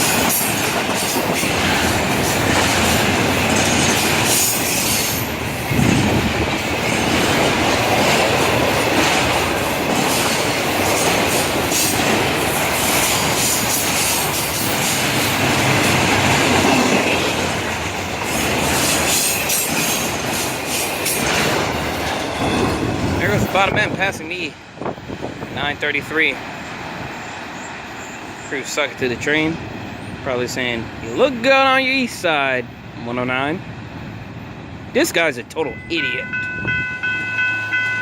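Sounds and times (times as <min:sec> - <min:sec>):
freight train rolling past: 0:00.0 - 0:38.0
wheels clacking on rail: 0:00.0 - 0:38.0.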